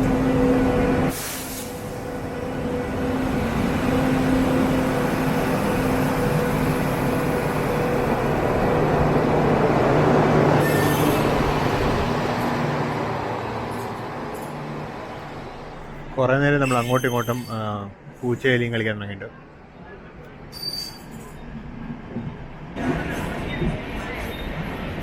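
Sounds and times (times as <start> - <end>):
brief high hiss: 1.1 - 1.9.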